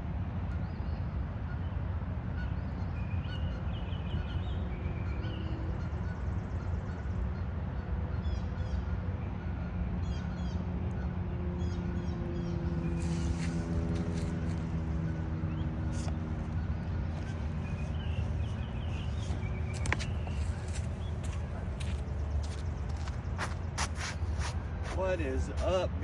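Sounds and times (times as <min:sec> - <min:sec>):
low outdoor rumble: 0:00.0 - 0:26.0
birds chirping: 0:11.6 - 0:26.0.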